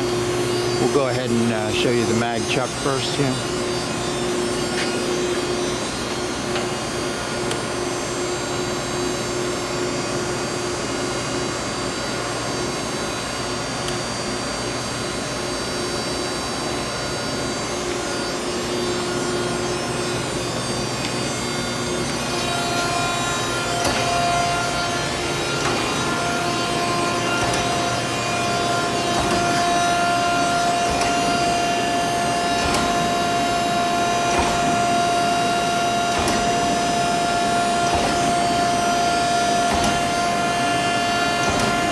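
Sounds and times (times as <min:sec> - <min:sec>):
surface grinder humming: 0:21.7 - 0:41.9.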